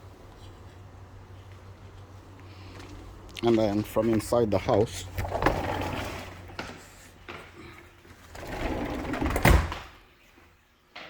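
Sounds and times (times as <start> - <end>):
sliding glass door rumbling: 5.1 - 6.6, 8.2 - 9.9.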